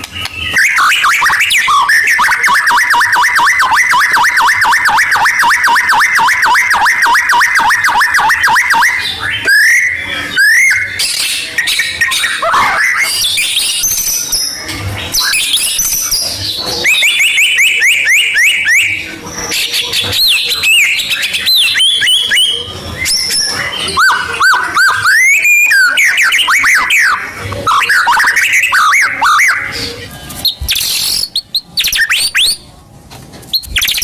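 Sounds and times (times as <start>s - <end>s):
songbird singing whistled phrases: 0.0s - 32.7s, 33.5s - 34.0s.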